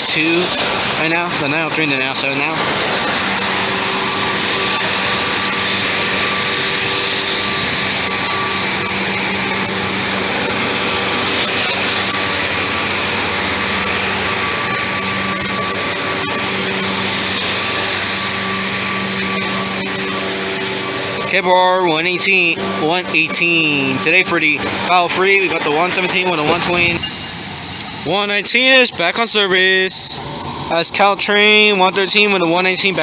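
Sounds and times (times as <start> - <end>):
diesel locomotive droning: 0.0 - 33.0.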